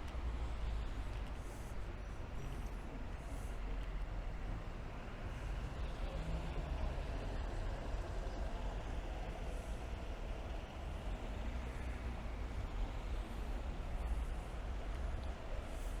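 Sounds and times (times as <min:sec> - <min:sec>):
traffic engine and road rumble: 0:00.0 - 0:16.0
rain: 0:03.2 - 0:16.0.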